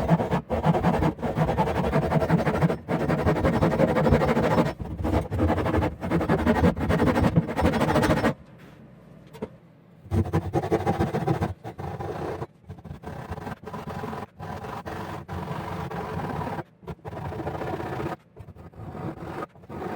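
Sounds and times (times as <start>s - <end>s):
pull saw rasping through wood: 0.0s - 8.3s.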